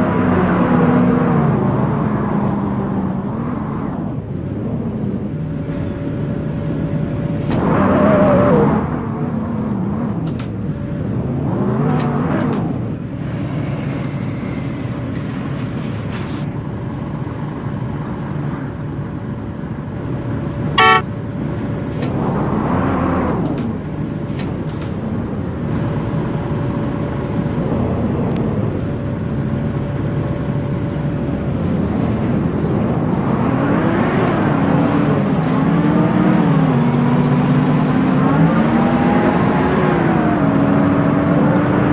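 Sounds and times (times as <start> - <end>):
bus diesel engine: 0.0 - 41.9
road and cabin noise: 0.0 - 41.9
short loud horn toot: 20.8 - 21.0.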